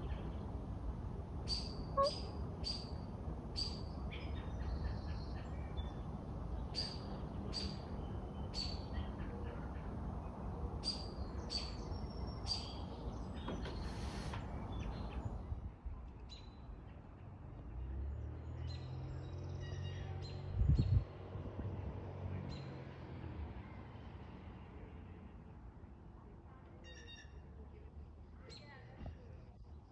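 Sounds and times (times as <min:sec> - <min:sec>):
songbirds chirping: 0:03.6 - 0:23.1.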